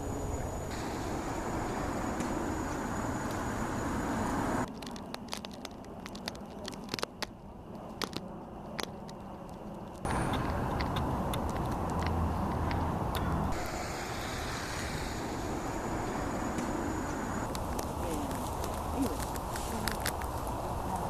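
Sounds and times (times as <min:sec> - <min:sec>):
distant road traffic rumble: 0:00.0 - 0:21.0
sharp clicks and crunches: 0:04.6 - 0:13.7, 0:17.4 - 0:21.0.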